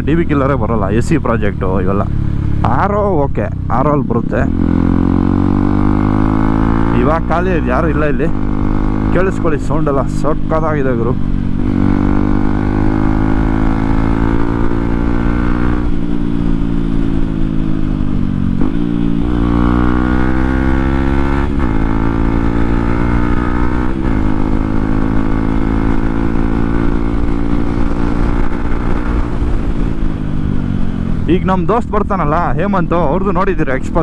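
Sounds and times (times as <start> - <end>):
loud motorcycle exhaust: 4.5 - 7.3, 8.3 - 9.2, 11.2 - 31.3.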